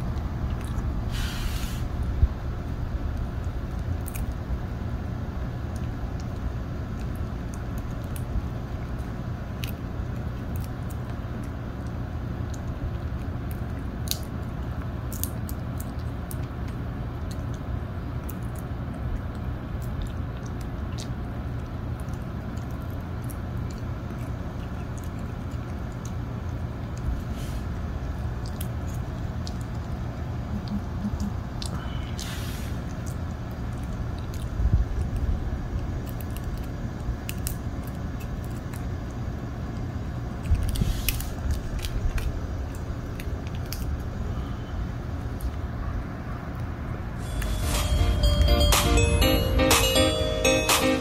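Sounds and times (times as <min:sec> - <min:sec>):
dog chewing popcorn crunches: 0:00.0 - 0:01.1, 0:02.0 - 0:30.4, 0:32.8 - 0:44.2
steady low hum: 0:00.0 - 0:51.0.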